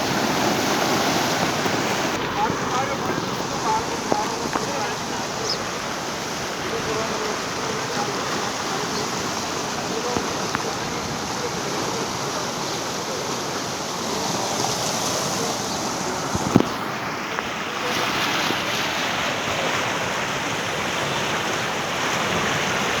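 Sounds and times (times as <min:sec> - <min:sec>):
rain falling: 0:00.0 - 0:17.5.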